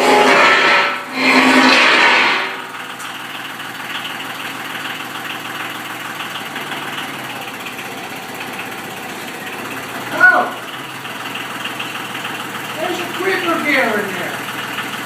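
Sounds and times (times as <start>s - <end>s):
loud rushing noise: 0.0s - 2.9s
engine idling: 0.0s - 15.0s.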